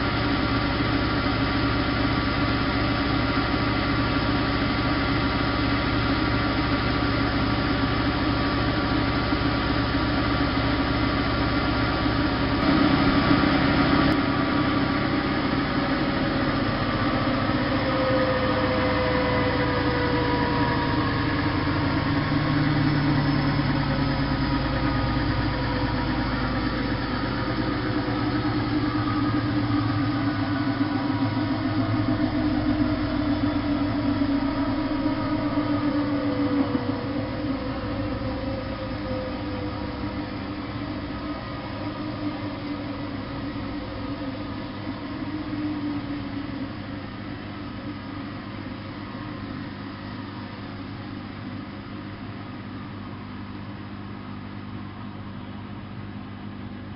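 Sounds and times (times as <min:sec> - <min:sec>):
washing machine running: 0:00.0 - 0:56.9.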